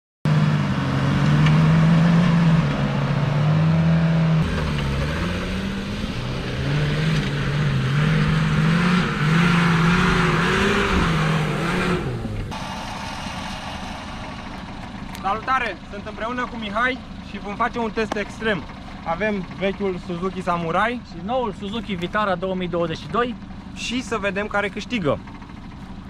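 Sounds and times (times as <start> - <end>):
engine revving hard: 0.3 - 15.3
loud hiss: 12.5 - 14.7.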